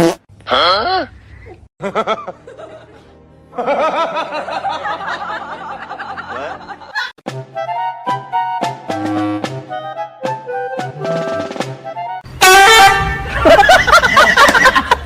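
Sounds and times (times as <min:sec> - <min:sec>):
people laughing: 0:01.8 - 0:07.2, 0:13.2 - 0:15.0
jazzy music with drums and brass: 0:07.3 - 0:13.4.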